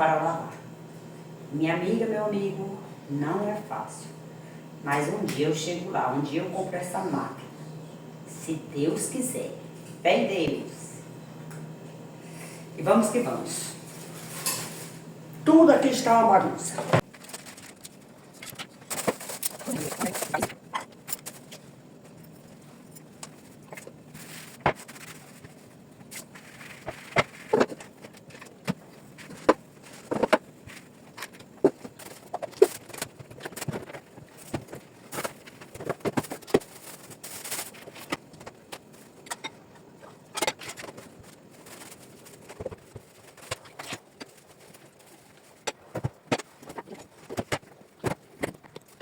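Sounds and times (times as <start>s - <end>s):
dishes clinking and scraping: 14.0s - 15.0s.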